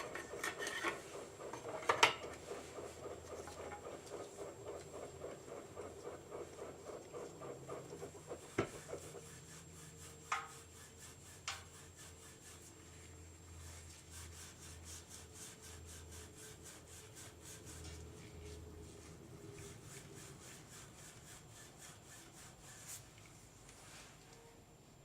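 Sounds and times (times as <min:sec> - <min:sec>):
abrasive pad scrubbing metal: 0:00.0 - 0:12.8.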